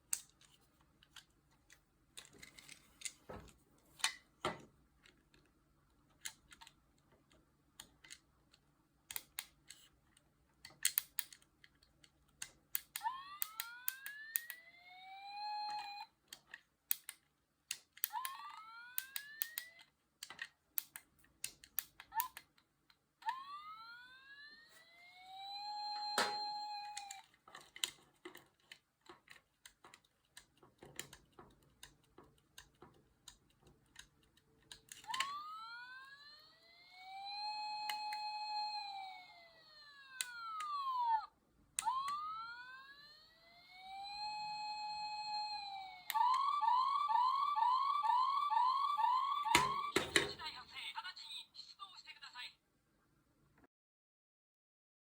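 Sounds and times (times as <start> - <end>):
toy electronic siren wail: 12.8 - 16.2, 18.0 - 20.0, 23.2 - 27.4, 35.0 - 50.4.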